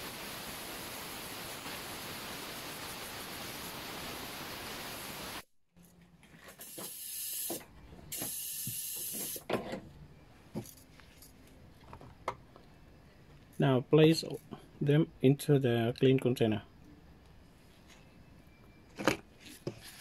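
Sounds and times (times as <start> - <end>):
aerosol spray hissing: 6.6 - 9.4.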